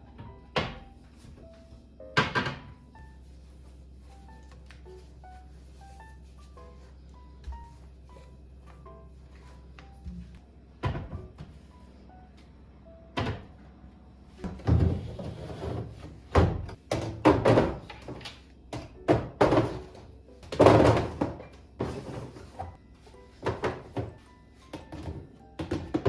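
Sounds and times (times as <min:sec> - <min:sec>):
objects knocking and clunking: 0:00.0 - 0:01.4, 0:02.1 - 0:02.9, 0:09.8 - 0:11.6, 0:14.4 - 0:26.0
soft background music: 0:00.0 - 0:26.0.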